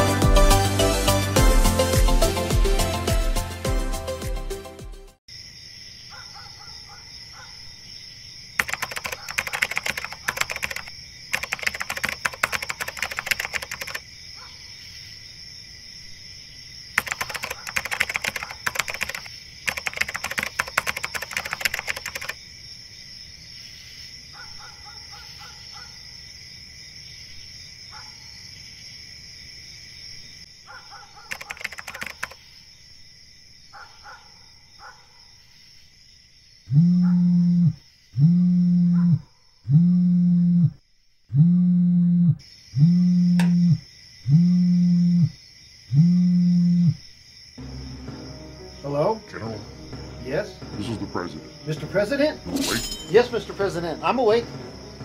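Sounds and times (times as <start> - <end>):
night insects droning: 5.3 - 55.0
keyboard typing clicks: 8.6 - 14.0, 17.0 - 22.4, 31.3 - 32.4, 43.4 - 43.7
pulsed chirps: 39.7 - 47.0.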